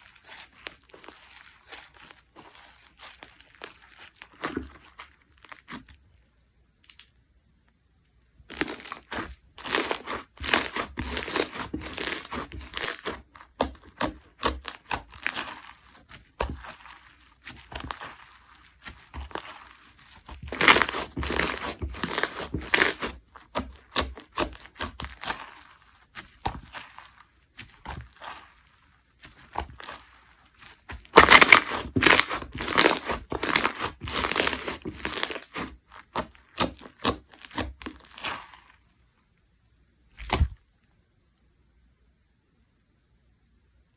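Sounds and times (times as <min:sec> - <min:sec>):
slime crackling when squeezed: 0:08.5 - 0:38.7.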